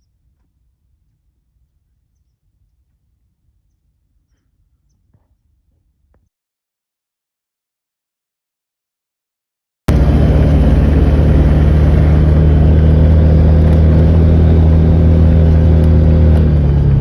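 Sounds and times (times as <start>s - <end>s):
vehicle engine running: 9.9s - 17.0s.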